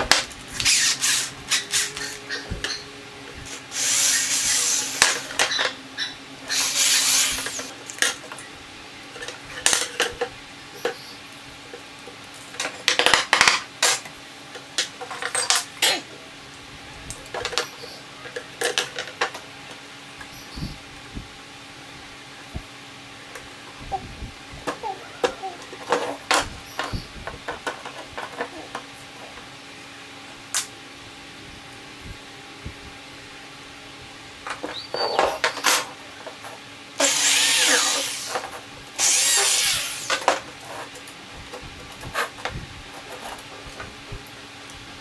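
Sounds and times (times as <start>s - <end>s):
tool scraping strokes: 0.5s - 2.5s, 3.5s - 5.2s, 6.5s - 7.7s, 37.0s - 41.0s.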